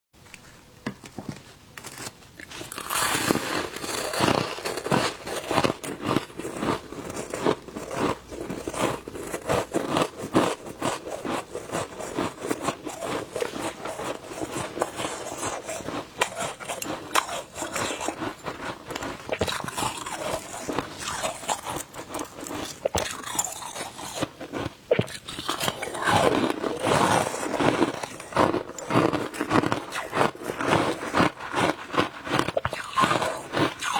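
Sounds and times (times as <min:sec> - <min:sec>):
ice being chewed: 0:01.8 - 0:33.9.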